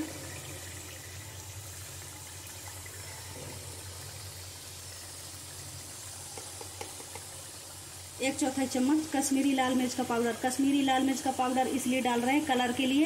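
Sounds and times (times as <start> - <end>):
paste and oil sizzling: 3.0 - 13.0.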